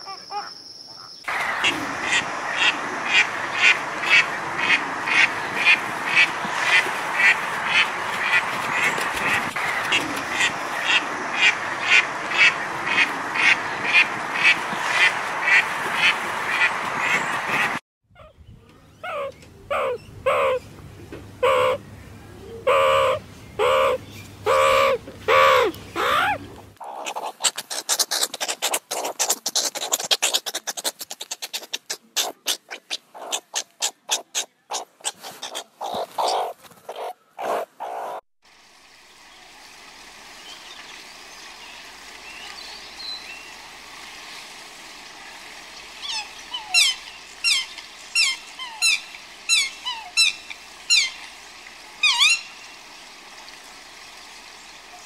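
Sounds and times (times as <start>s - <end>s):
outdoor background: 0.0s - 55.0s
meerkat yelping: 19.0s - 20.6s, 21.4s - 21.8s, 22.6s - 38.2s
meerkat clicking chatter: 24.5s - 38.2s
small bird chirping: 25.6s - 38.2s.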